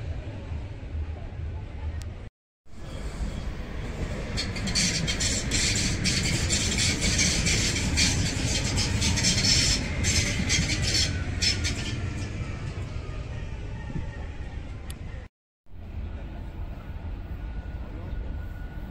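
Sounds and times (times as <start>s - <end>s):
train passing with wheel clicks: 2.8s - 13.5s.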